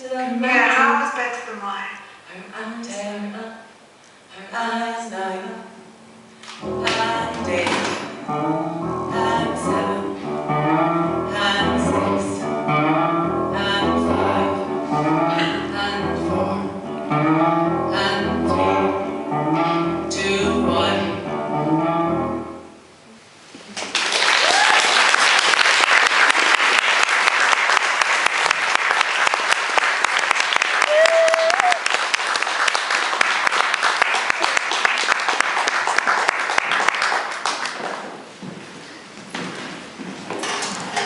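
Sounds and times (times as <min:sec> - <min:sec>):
vocal group singing in harmony: 0:13.6 - 0:16.9, 0:17.9 - 0:19.0
audience applause: 0:23.8 - 0:38.1.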